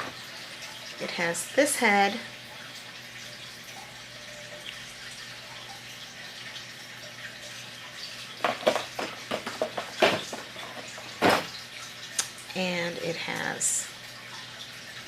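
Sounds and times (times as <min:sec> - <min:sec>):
plastic clicks and knocks: 0:08.4 - 0:10.5.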